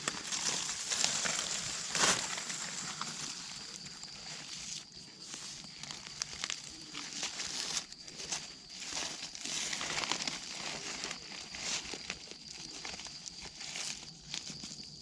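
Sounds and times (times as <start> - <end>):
dry leaves rustling and crackling: 0.0 - 15.0.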